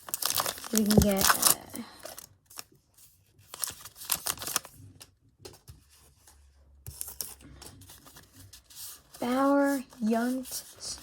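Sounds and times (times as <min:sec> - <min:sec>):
wrapper crinkling and tearing: 0:00.0 - 0:02.7, 0:03.4 - 0:04.8
cards being handled: 0:00.2 - 0:02.7.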